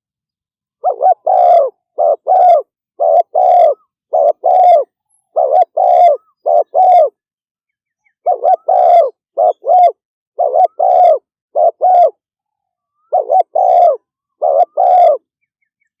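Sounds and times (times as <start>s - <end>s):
dove cooing: 0.8s - 7.2s, 8.2s - 12.2s, 13.0s - 15.3s.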